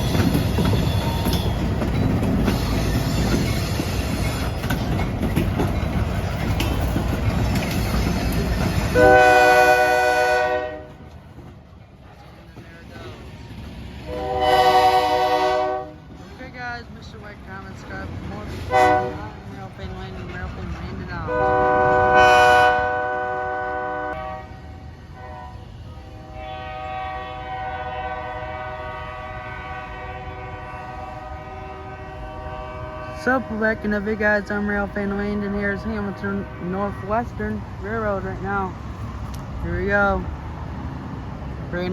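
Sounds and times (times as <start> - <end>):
freight train rumbling past: 0.0 - 41.9
locomotive horn chord: 8.9 - 11.0, 14.1 - 16.0, 18.7 - 19.3, 21.3 - 33.9.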